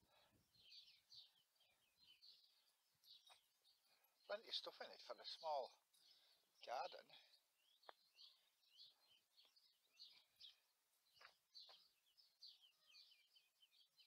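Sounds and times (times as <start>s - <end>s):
songbirds chirping and twittering: 0.0s - 14.0s.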